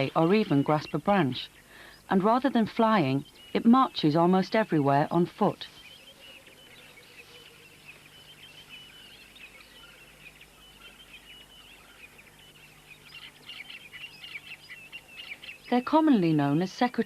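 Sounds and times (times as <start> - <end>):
faint low hum: 0.0 - 17.0
small birds chirping and trilling: 0.0 - 17.0.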